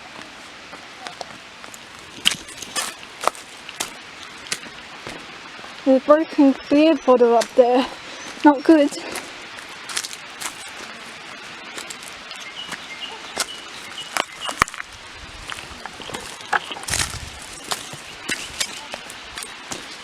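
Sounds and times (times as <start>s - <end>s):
footsteps on stone and gravel: 0.0s - 5.9s, 6.8s - 20.0s
background hiss: 0.0s - 20.0s
bird chirps: 10.4s - 14.8s, 15.8s - 19.1s.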